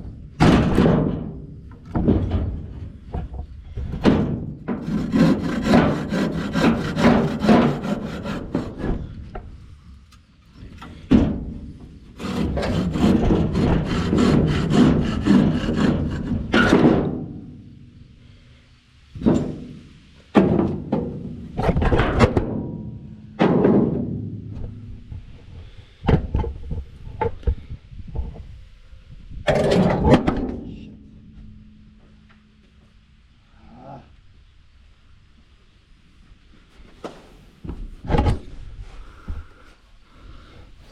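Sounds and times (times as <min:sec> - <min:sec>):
hand saw cutting wood: 0:04.7 - 0:09.1, 0:12.2 - 0:16.8.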